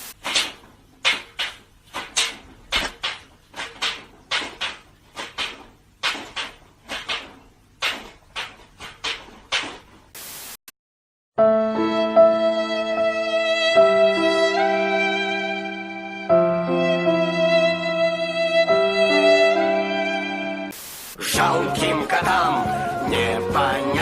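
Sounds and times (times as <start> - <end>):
sharp scraping knocking strikes: 0.1 - 10.0
violin music: 11.4 - 20.7.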